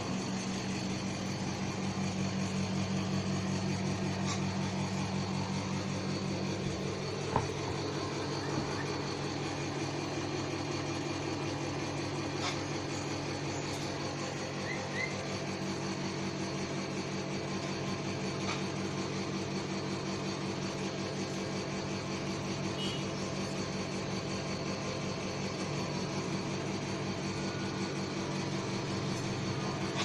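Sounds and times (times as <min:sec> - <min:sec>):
motor humming: 0:00.0 - 0:30.0.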